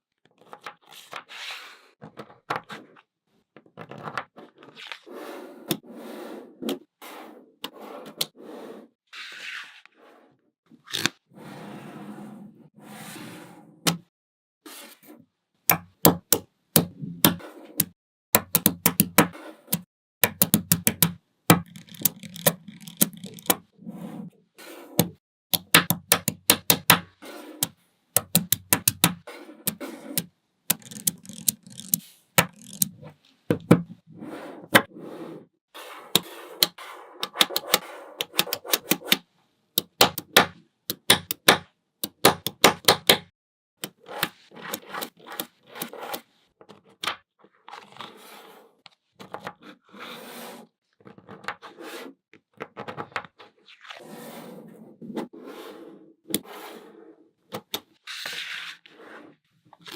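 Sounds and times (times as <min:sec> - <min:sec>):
magnetic balls clicking together: 0:28.2 - 0:29.2, 0:30.7 - 0:32.9.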